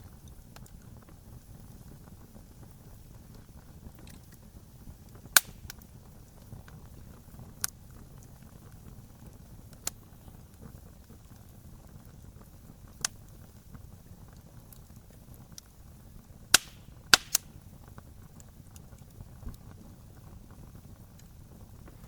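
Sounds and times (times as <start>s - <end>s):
wood fire crackling: 0.0s - 22.0s
logs popping: 5.1s - 5.9s, 16.5s - 19.0s.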